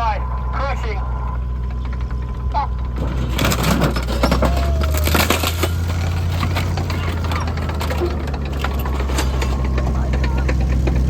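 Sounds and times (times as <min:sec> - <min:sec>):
armoured vehicle engine running: 0:00.0 - 0:11.0
sharp cracks and crunches: 0:03.1 - 0:09.5.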